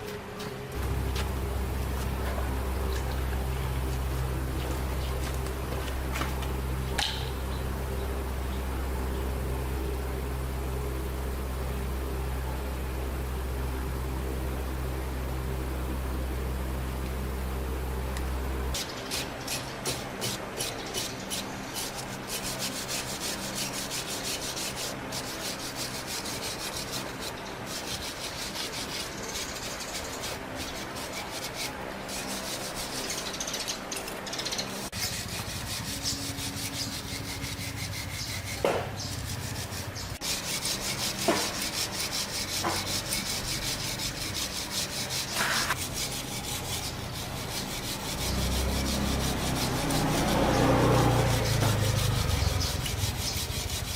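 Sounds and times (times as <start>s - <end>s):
rubbing strokes on hard surface: 18.7s - 34.0s, 34.9s - 53.9s.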